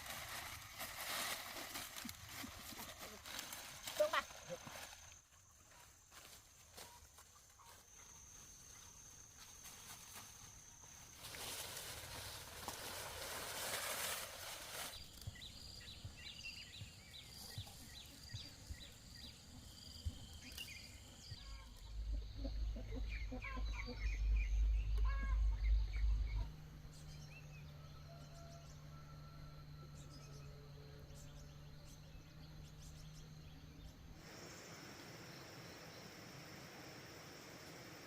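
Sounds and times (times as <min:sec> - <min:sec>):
hissing rustle: 0:11.1 - 0:15.2
small birds chirping: 0:14.7 - 0:27.6.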